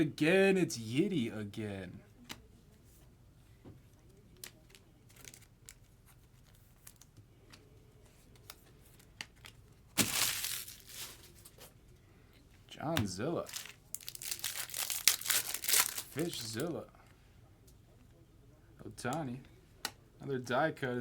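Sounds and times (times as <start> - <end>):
cards clicking and rustling: 4.4 - 11.7, 13.0 - 16.7
wrapper ripping open: 10.0 - 11.4, 13.4 - 16.6.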